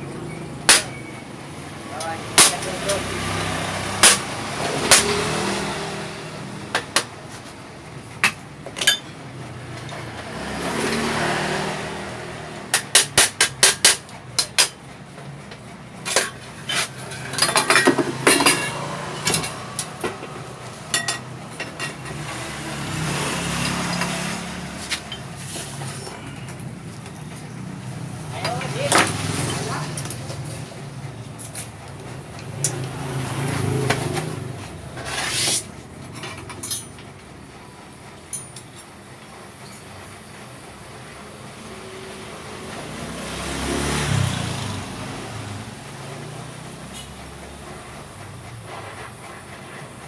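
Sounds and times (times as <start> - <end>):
passing motor vehicles: 0.0 - 39.2, 40.1 - 50.0
hammer striking metal: 0.7 - 1.0, 4.0 - 5.3.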